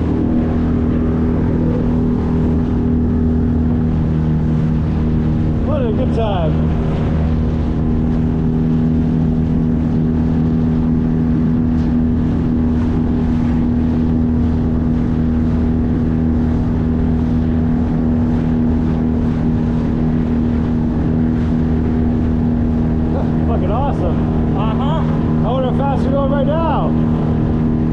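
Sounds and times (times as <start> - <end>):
outboard motor running: 0.0 - 27.9
water rushing past: 0.0 - 27.9
wind rushing: 20.8 - 27.9.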